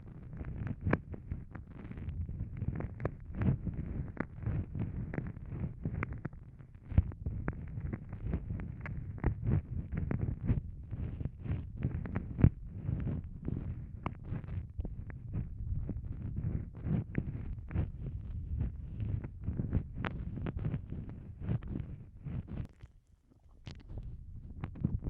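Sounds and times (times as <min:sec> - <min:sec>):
low muffled rumble: 0:00.0 - 0:22.8, 0:23.4 - 0:25.0
wet mouth sounds: 0:22.4 - 0:24.9.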